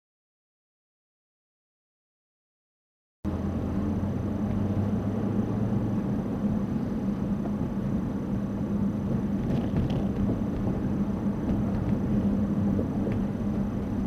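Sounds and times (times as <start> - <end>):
car engine and road hum: 3.3 - 14.0.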